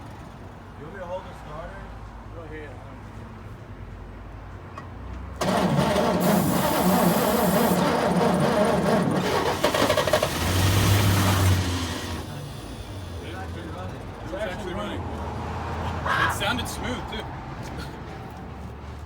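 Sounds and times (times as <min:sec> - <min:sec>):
starter cranking engine: 0:05.4 - 0:14.0
pickup engine running: 0:05.4 - 0:14.1.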